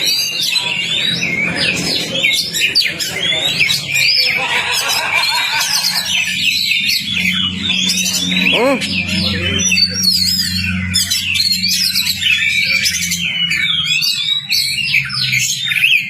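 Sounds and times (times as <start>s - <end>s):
bird singing whistles and chirps: 6.2s - 16.0s.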